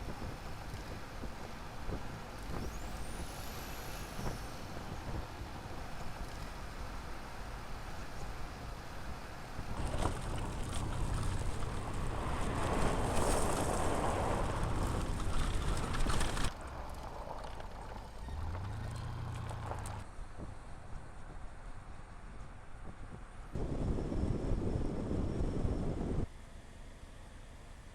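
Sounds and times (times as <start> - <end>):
pickup truck engine: 0.2 - 20.0
wind noise: 9.6 - 21.7, 22.3 - 26.3
tyre noise: 9.7 - 20.0.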